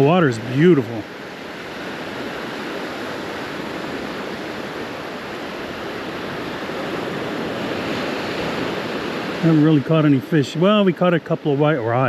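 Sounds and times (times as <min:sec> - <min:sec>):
surf breaking on beach: 0:00.0 - 0:12.0.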